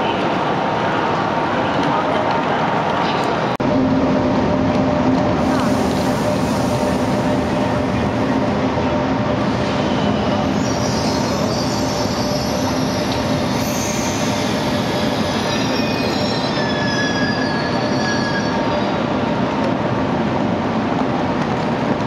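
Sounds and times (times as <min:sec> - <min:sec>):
train rumble: 0:00.0 - 0:22.0
train wheels squealing: 0:09.6 - 0:19.2.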